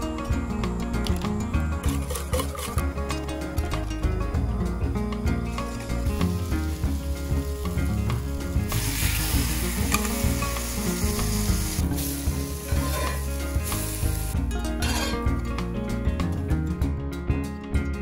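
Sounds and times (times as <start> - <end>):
background music: 0.0 - 18.0
bread sizzling on a griddle: 5.7 - 14.4.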